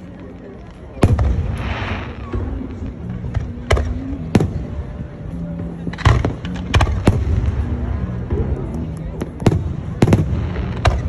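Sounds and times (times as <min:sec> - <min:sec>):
fireworks crackling fizz: 0:00.0 - 0:03.3
music playing: 0:00.0 - 0:11.0.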